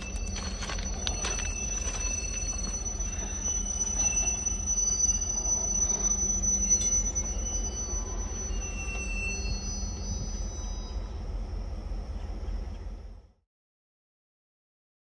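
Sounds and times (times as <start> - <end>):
high-pitched squeal: 0.0 - 11.6
freight train rumbling: 0.0 - 13.3.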